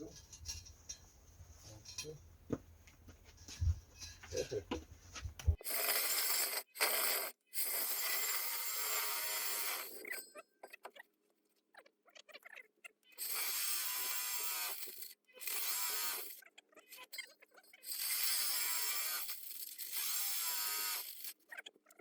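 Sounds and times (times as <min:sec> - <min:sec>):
core drill drilling: 0:05.6 - 0:10.2, 0:13.2 - 0:16.4, 0:17.8 - 0:21.4.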